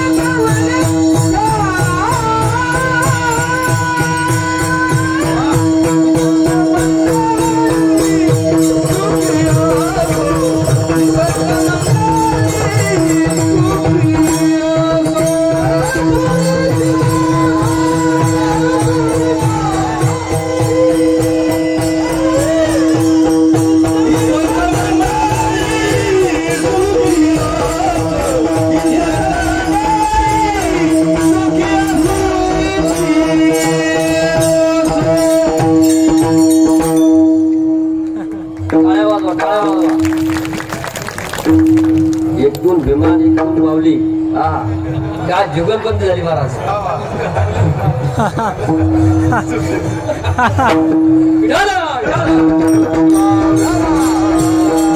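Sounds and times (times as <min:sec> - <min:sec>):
man singing: 0:00.0 - 0:37.2, 0:48.2 - 0:54.9
jingling percussion: 0:00.0 - 0:54.9
drum beat: 0:48.0 - 0:54.9.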